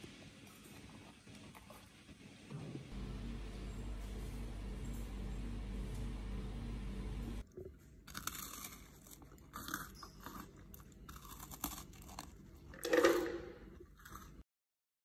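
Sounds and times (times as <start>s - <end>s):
oven humming: 2.5s - 7.4s
bread crunching being chewed: 7.4s - 12.8s, 13.7s - 14.4s.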